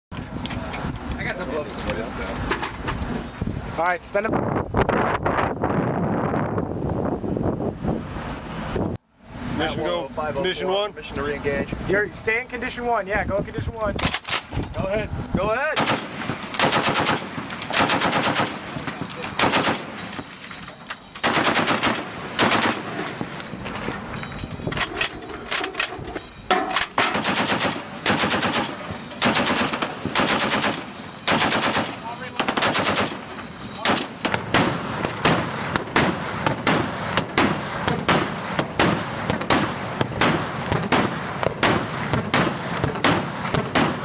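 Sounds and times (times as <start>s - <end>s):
sustained gunfire: 15.7s - 20.0s, 21.2s - 23.0s, 26.9s - 33.2s, 33.8s - 44.0s.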